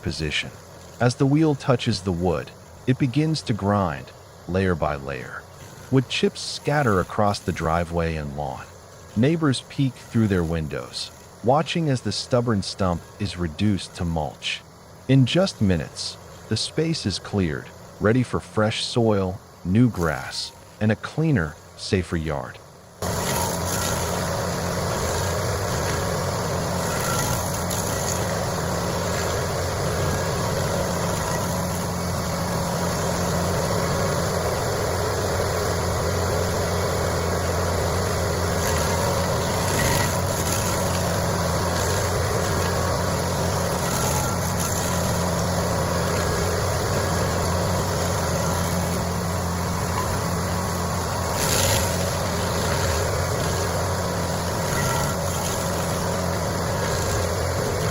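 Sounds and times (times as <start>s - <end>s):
heavy machine engine running: 0.0s - 57.9s.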